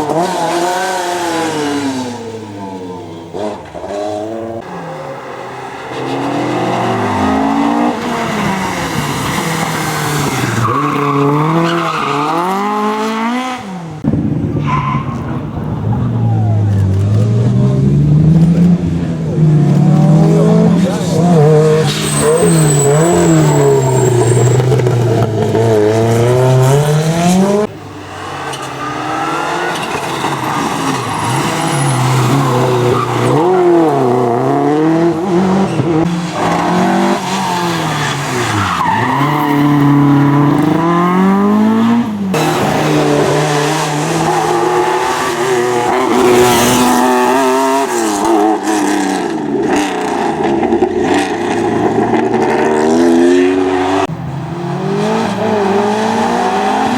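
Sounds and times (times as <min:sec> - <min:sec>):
rally car engines revving: 0:00.0 - 0:56.9.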